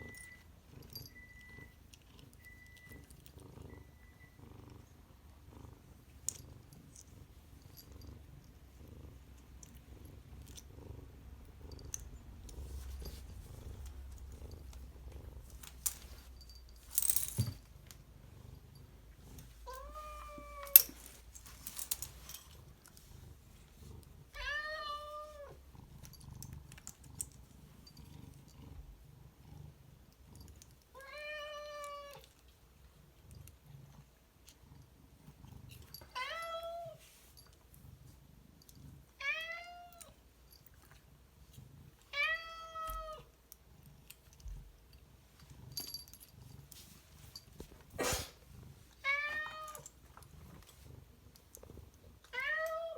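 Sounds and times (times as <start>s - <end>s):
cat purring: 0.0s - 16.6s, 17.7s - 31.0s, 49.9s - 52.3s.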